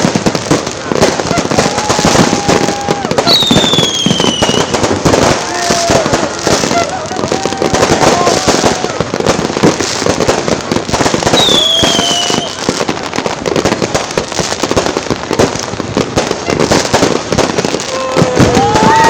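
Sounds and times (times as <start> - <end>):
firecrackers popping and crackling: 0.0 - 19.0
falling firework whistle: 0.9 - 9.2, 11.0 - 12.9, 17.6 - 19.0.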